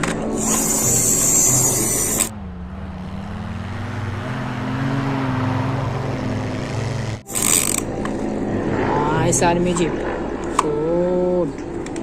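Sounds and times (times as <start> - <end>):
toy jeep motor drone: 0.3 - 2.3, 6.1 - 7.9.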